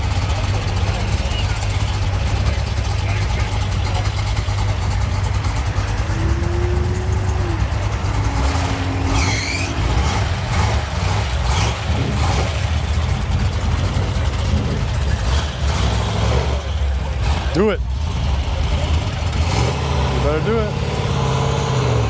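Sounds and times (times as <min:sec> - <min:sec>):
traffic engine rumble: 0:00.0 - 0:22.0
high-pitched squeal: 0:05.5 - 0:12.1.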